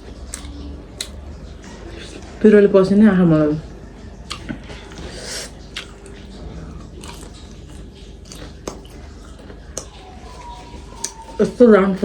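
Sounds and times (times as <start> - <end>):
chewing and biting food: 4.2 - 11.4.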